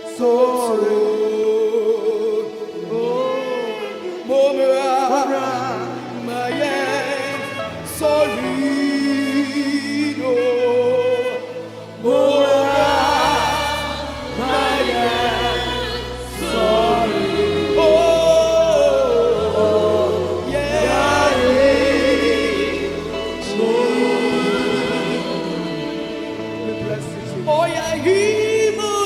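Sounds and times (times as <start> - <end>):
choir singing gospel: 0.0 - 29.0
band playing: 2.8 - 29.0
bass line: 12.0 - 29.0.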